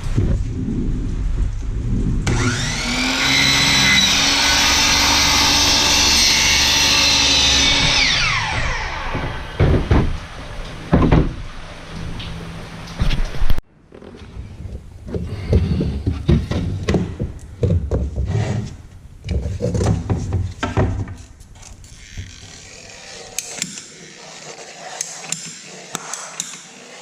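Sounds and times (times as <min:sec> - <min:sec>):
power saw cutting a board: 0:02.3 - 0:10.4, 0:21.9 - 0:27.0
sharp knocks: 0:08.7 - 0:10.2.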